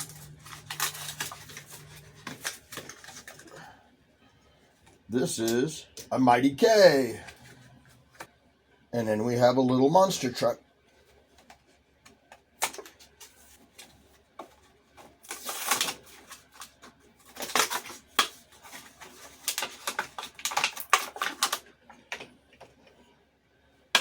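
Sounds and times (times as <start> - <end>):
plastic packaging crackling: 0.0 - 3.7, 15.0 - 22.3.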